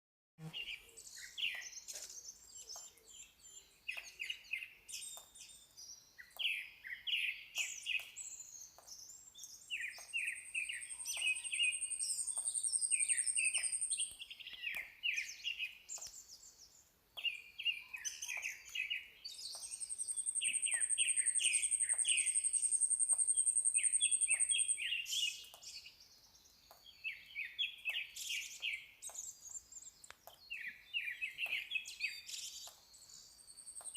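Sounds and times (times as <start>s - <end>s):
birds chirping: 0.4s - 33.9s.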